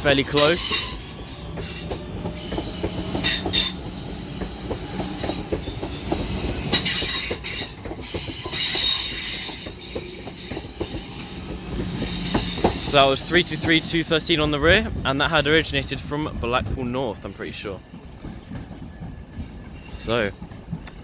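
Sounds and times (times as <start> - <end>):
wheel flanges squealing: 0.0 - 14.0
train wheels clicking over rail joints: 0.0 - 15.7, 16.3 - 21.0.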